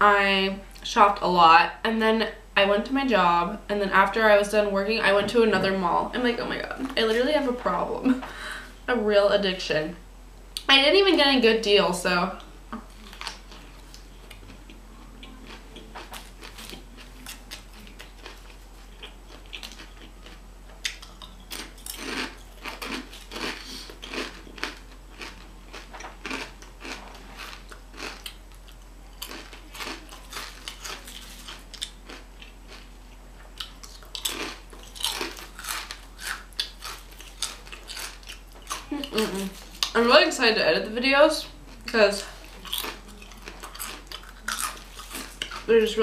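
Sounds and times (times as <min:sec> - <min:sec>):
chewing and crunching sandwich: 0:12.8 - 0:40.0, 0:41.6 - 0:45.7.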